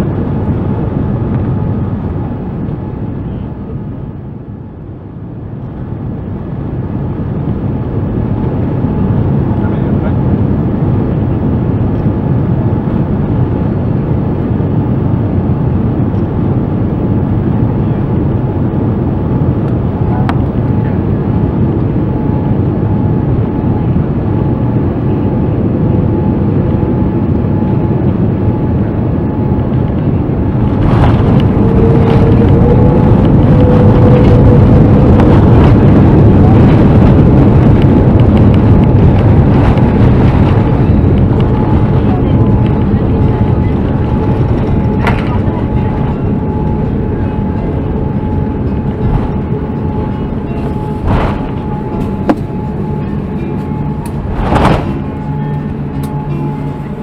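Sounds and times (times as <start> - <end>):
jet engine tone: 20.8 - 57.0
airplane cabin rush: 28.0 - 57.0.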